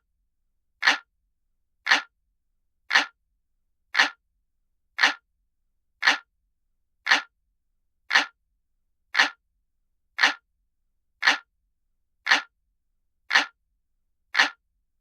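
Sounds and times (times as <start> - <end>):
analog clock ticking: 0.8 - 1.1, 1.9 - 2.1, 2.9 - 3.2, 4.0 - 4.2, 5.0 - 5.2, 6.0 - 6.3, 7.1 - 7.3, 8.1 - 8.4, 9.2 - 9.4, 10.2 - 10.4, 11.2 - 11.5, 12.3 - 12.5, 13.3 - 13.6, 14.4 - 14.6.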